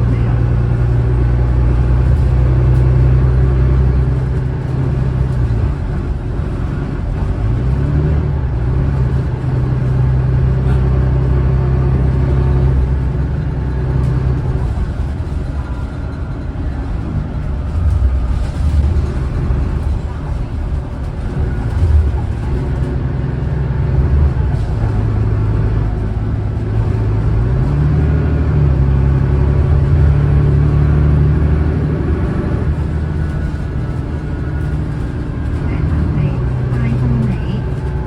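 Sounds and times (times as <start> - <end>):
bus diesel engine revving: 0.0 - 38.0.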